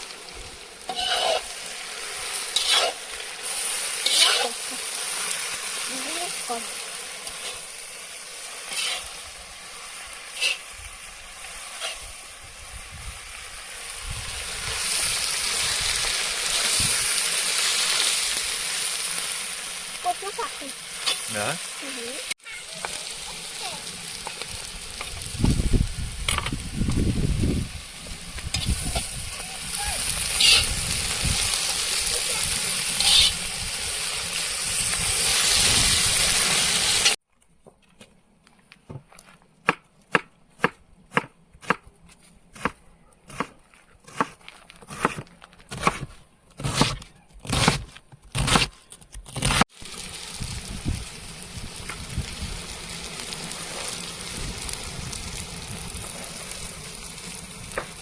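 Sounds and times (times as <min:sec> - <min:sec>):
vegetables sizzling in a pot: 0:00.0 - 0:37.2, 0:49.6 - 0:58.0
sharp strokes: 0:32.9 - 0:33.4.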